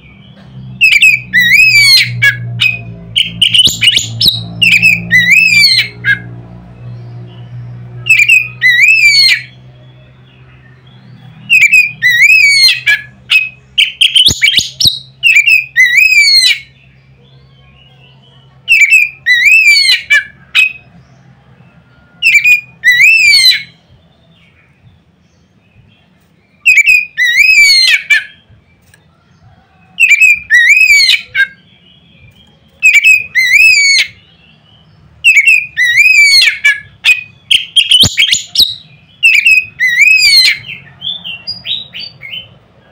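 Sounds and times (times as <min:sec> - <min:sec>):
bird singing whistled phrases: 0:00.8 - 0:06.0, 0:08.1 - 0:09.6, 0:11.5 - 0:16.7, 0:18.0 - 0:20.8, 0:22.2 - 0:23.8, 0:26.5 - 0:28.4, 0:30.0 - 0:34.4, 0:35.2 - 0:42.5.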